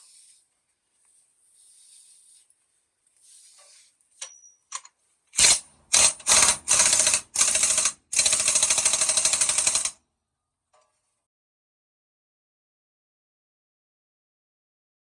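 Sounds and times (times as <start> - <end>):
impact wrench hammering: 5.4 - 9.9.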